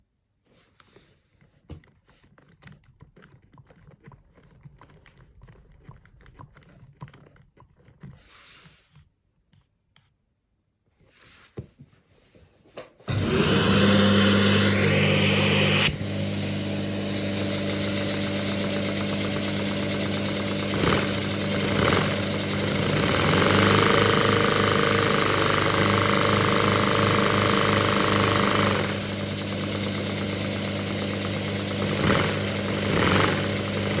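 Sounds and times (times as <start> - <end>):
toy vacuum engine running: 13.1 - 34.0.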